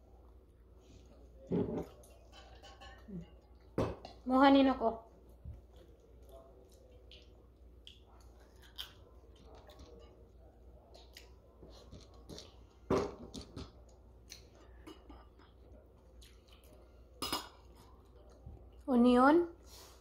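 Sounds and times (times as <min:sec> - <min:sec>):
chewing: 0:05.1 - 0:12.8, 0:13.8 - 0:18.8
lip smacks: 0:05.7 - 0:09.1.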